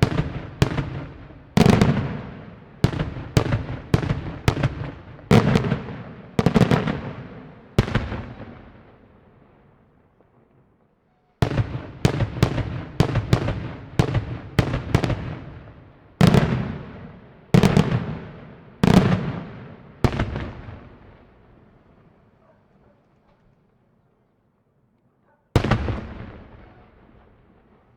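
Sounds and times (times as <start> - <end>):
heavy firework blasts: 0.0 - 9.0, 11.4 - 21.2, 25.6 - 27.9
fireworks bangs: 0.0 - 9.1, 11.4 - 21.3, 25.6 - 27.9.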